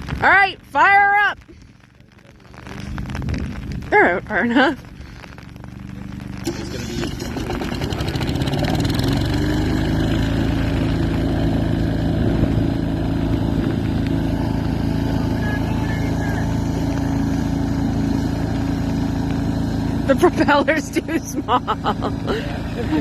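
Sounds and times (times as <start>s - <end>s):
small diesel boat motor: 4.9s - 23.0s.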